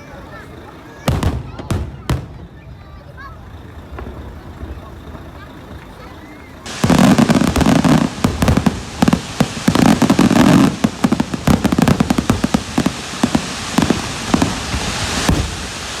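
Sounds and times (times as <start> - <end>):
firecrackers crackling: 0.0 - 16.0
fireworks bangs and pops: 1.0 - 16.0.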